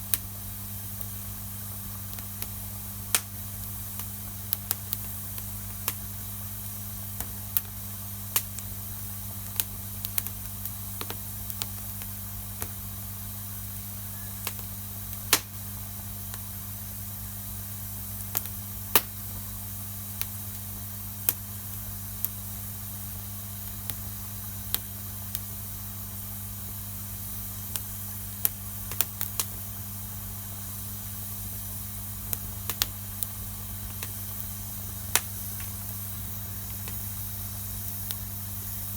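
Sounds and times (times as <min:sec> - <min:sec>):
low steady hum: 0:00.0 - 0:38.9
steady hiss: 0:00.0 - 0:38.9
wood fire crackling: 0:00.0 - 0:38.9.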